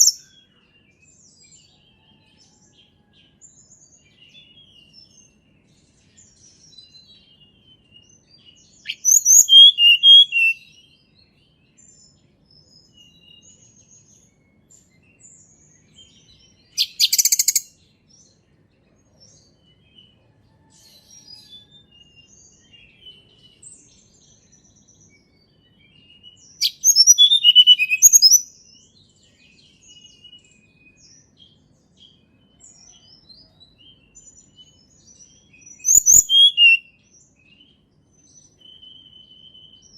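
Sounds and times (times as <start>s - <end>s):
faint bird twittering: 0.0s - 0.9s, 4.3s - 10.9s, 11.8s - 17.8s, 18.9s - 39.9s
bird chirping: 0.0s - 39.9s.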